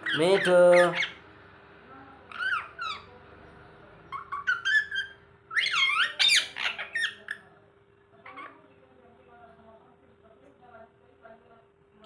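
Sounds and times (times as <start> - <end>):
parakeet squeaky chirps: 0.0 - 1.2, 2.3 - 3.2, 4.1 - 7.5, 8.2 - 8.6.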